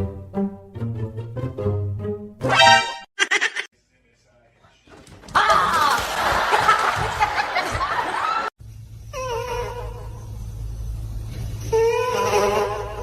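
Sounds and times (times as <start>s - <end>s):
people laughing: 3.2s - 3.7s, 5.4s - 8.5s.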